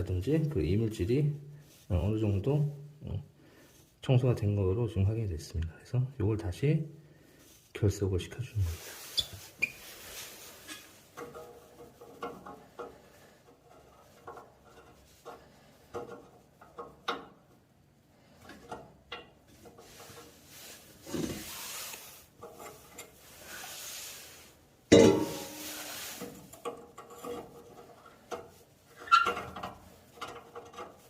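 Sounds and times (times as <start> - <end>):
rubbing and scraping: 8.6 - 17.1, 19.4 - 31.0
metal clicks and knocks: 11.1 - 17.6, 29.2 - 31.0.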